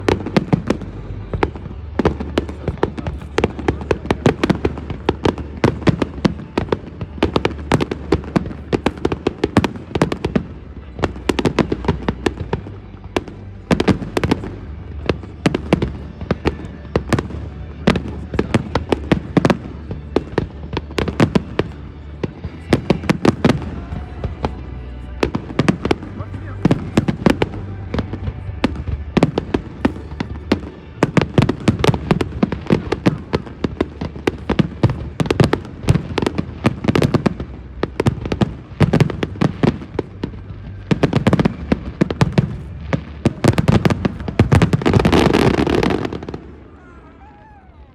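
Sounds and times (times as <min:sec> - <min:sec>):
low rumble: 0:17.2 - 0:45.1.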